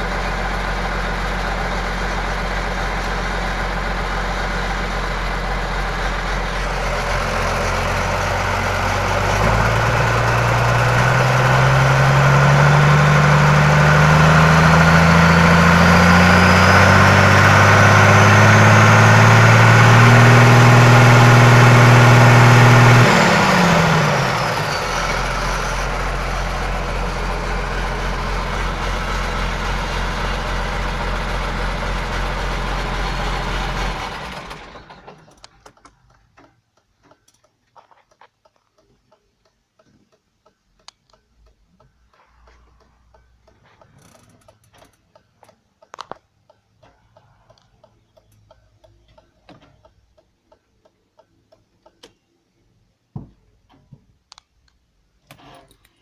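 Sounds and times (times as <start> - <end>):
tractor diesel engine revving: 0.0 - 35.5.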